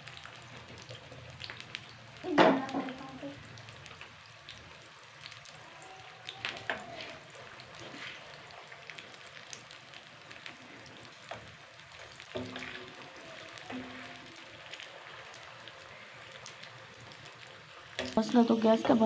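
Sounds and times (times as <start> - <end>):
potatoes sizzling in hot oil: 0.0 - 19.0
metal spoon stirring in pan: 6.5 - 9.2, 10.2 - 19.0.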